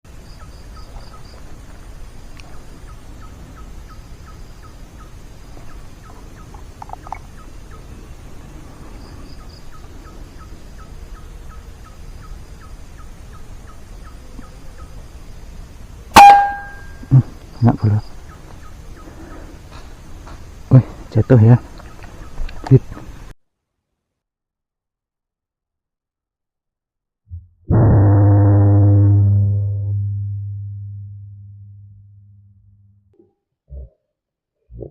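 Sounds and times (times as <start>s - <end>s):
bird calling short clipped notes: 16.2s - 17.0s
faint high beaded bird notes: 16.2s - 17.1s.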